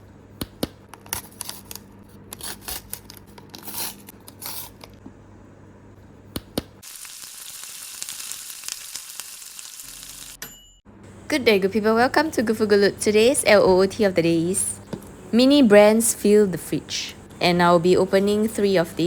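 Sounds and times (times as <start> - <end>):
crackly hiss: 6.8 - 10.4
foil packaging crinkling and tearing: 6.8 - 10.4.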